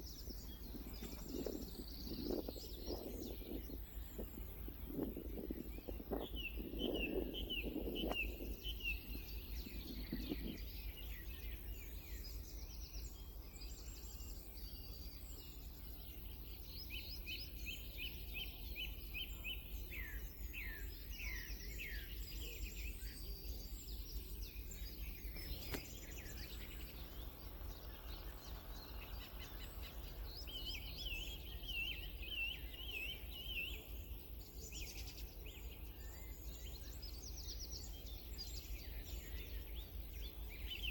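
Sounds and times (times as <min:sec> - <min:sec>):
birds chirping: 0:00.0 - 0:12.2, 0:24.4 - 0:40.9.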